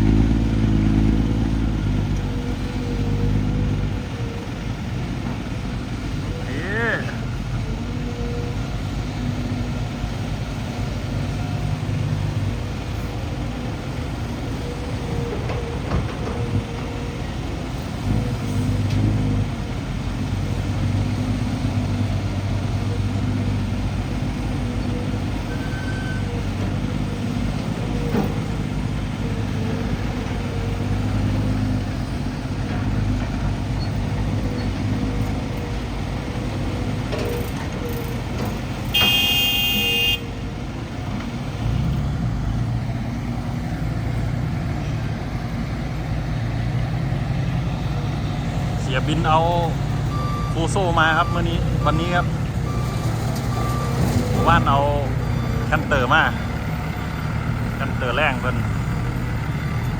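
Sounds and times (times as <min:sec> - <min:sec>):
diesel truck engine droning: 0:00.0 - 0:59.9.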